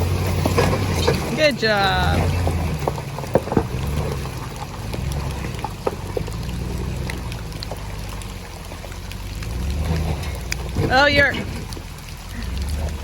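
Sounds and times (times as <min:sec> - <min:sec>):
car engine running: 0:00.0 - 0:13.0
water sloshing: 0:00.0 - 0:13.0
small ticks and knocks: 0:02.6 - 0:12.8.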